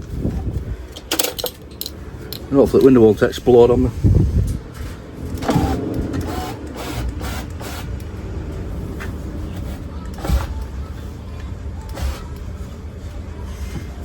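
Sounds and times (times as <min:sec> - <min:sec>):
electric window motor running: 0:04.7 - 0:10.7.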